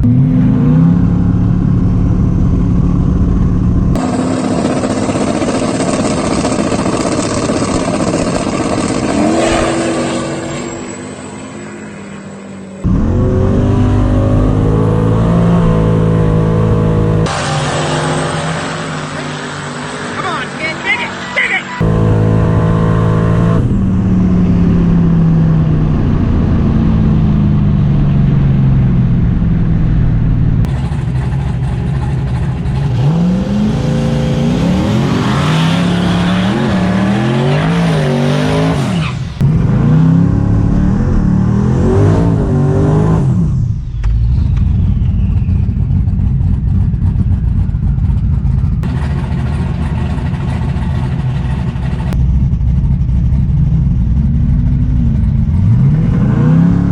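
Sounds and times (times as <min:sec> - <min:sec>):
drag racing car engine revving: 0:00.0 - 0:56.9.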